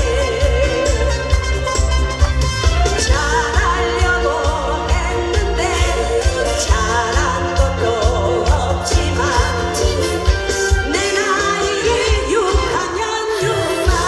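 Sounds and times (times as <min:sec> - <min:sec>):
person singing with vibrato: 0:00.0 - 0:02.2, 0:02.9 - 0:14.0
backing music with steady beat: 0:00.0 - 0:14.0.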